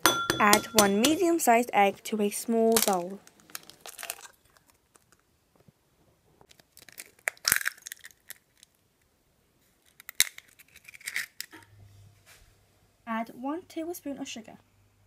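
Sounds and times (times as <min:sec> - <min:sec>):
eggshell knocking against bowl: 0:00.0 - 0:01.4
shell crackling: 0:02.6 - 0:05.3, 0:06.5 - 0:08.8, 0:09.8 - 0:11.6.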